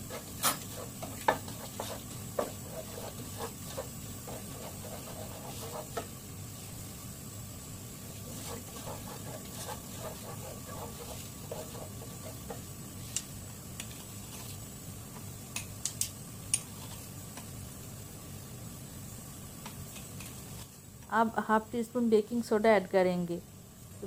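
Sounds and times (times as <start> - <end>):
spoon stirring in a pan: 0.0 - 6.2, 8.0 - 14.6
caramel crackling: 0.0 - 6.8, 7.9 - 14.7.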